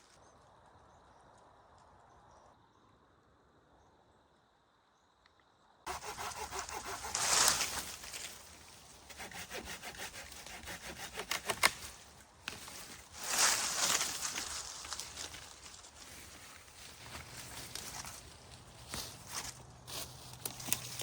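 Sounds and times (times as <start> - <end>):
hand saw cutting wood: 5.9 - 13.0.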